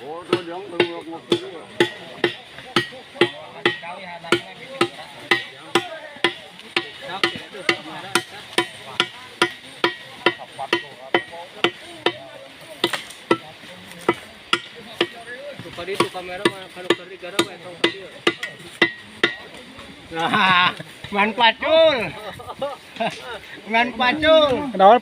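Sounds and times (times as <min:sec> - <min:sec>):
hoes striking hard earth: 0:00.0 - 0:19.6
voices chatting: 0:00.0 - 0:25.0.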